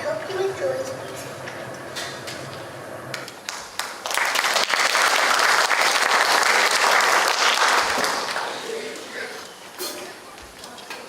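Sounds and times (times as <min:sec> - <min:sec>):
audience applauding: 0:03.1 - 0:09.1.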